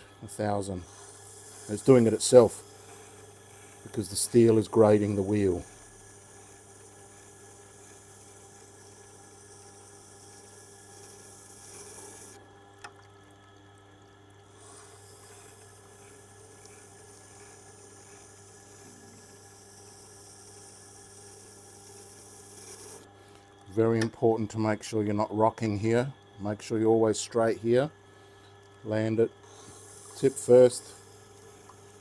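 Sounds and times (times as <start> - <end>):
wet grinder motor hum: 0.0 - 12.5, 14.4 - 24.2, 28.8 - 32.0
steel tool grinding on stone: 0.4 - 12.4, 14.6 - 23.1, 29.5 - 32.0
water noise from grinding stone: 0.4 - 13.8, 14.4 - 23.1, 29.5 - 32.0.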